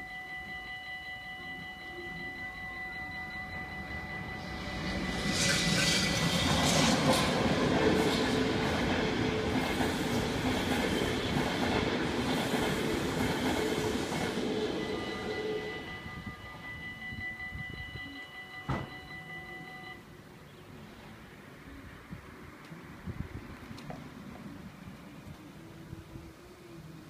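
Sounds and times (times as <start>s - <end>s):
crossing warning bells ringing: 0.0s - 20.4s
train wheels rattling on rails: 4.4s - 15.9s.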